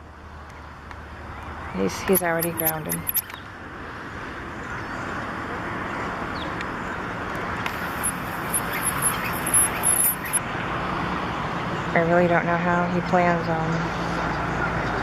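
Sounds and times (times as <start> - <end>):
high-pitched bird chirps: 2.0 - 3.4, 7.7 - 10.4
shoreline wash of noise: 7.7 - 10.4.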